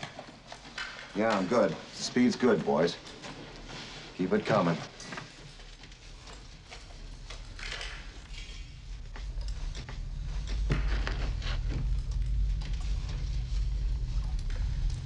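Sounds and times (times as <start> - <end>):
low hum: 5.9 - 15.0.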